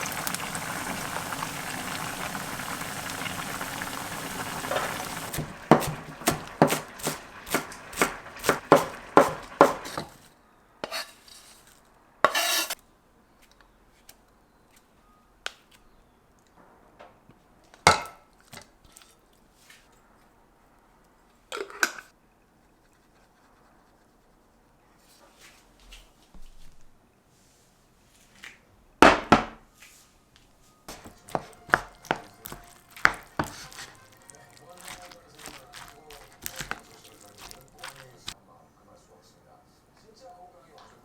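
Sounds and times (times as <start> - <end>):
knife chopping on cutting board: 4.7 - 10.2, 30.9 - 38.0.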